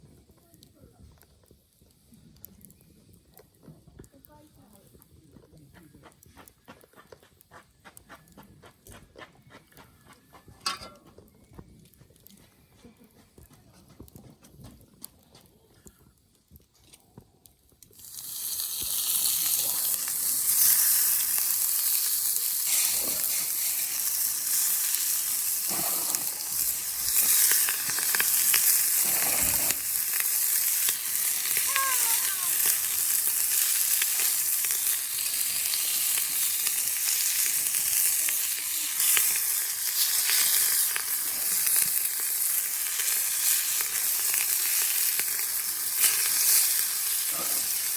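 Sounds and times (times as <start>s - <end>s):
meat sizzling in a skillet: 17.9s - 47.9s.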